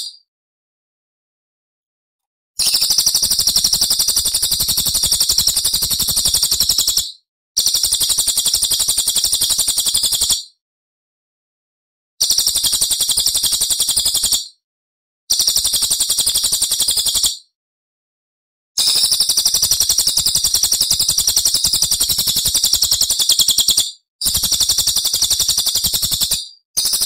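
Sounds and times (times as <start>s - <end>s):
songbird high-pitched trill: 0.0s - 0.2s, 2.6s - 5.7s, 18.8s - 24.0s.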